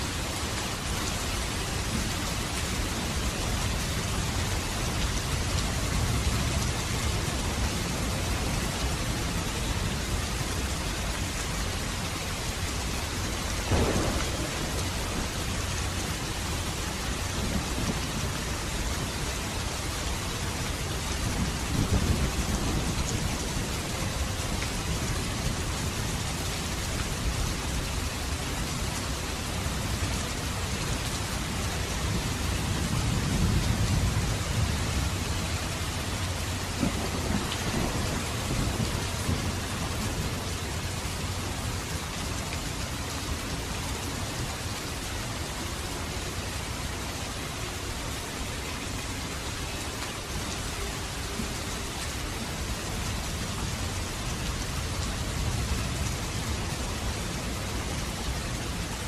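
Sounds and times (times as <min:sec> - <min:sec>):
steady rain falling: 0:00.0 - 0:59.0
rumbles of thunder: 0:13.6 - 0:19.0, 0:21.0 - 0:26.2, 0:31.9 - 0:40.5.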